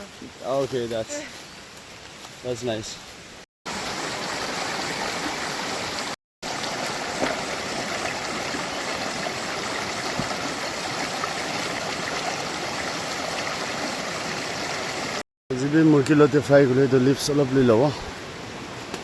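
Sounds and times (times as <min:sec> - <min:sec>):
stream flowing: 0:03.7 - 0:19.0.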